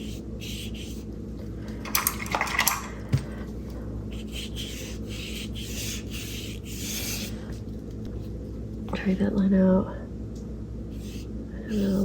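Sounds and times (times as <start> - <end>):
paintbrush rubbing on paper: 4.1 - 8.3.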